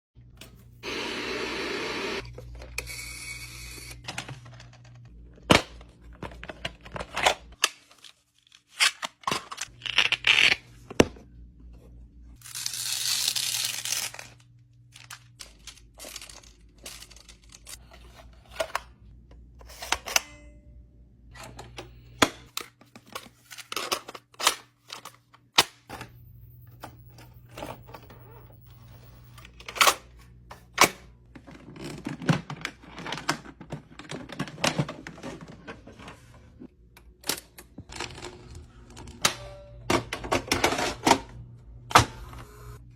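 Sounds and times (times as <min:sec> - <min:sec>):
mechanical clicks and clunks: 0:25.9 - 0:30.1
low steady hum: 0:25.9 - 0:31.5.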